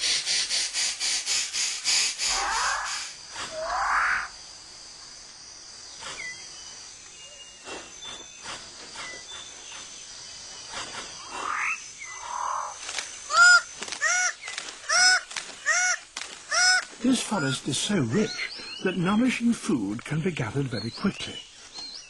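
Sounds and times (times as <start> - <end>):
arched ringing animal calls: 2.2 - 4.4, 10.6 - 19.2
rising animal call: 2.3 - 4.4.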